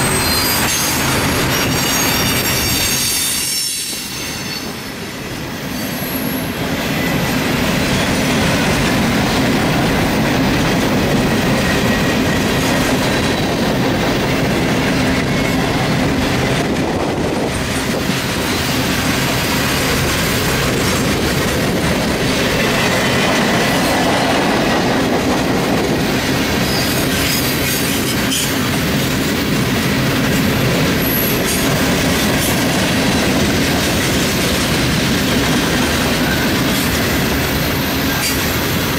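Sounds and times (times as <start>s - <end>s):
high wheel squeal: 0.0s - 8.1s, 26.6s - 28.7s
train wheels rumbling on rail: 0.0s - 38.9s
clickety-clack over rail joints: 6.5s - 38.9s.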